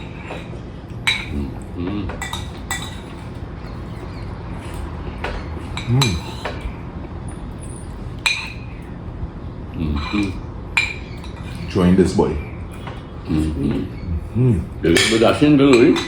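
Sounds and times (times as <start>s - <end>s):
spoons clinking against bowls: 0.0s - 9.0s, 9.8s - 16.0s
short low voice sound: 1.3s - 2.2s.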